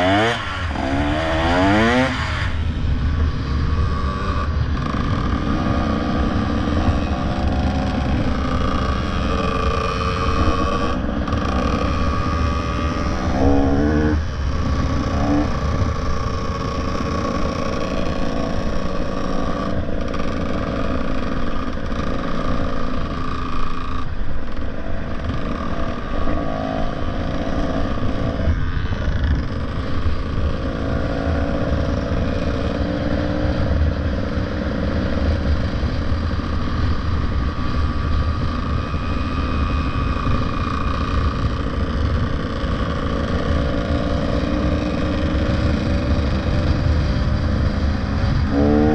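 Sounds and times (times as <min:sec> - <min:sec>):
motorcycle engine running: 0:00.0 - 0:48.9
wind noise: 0:24.8 - 0:48.9.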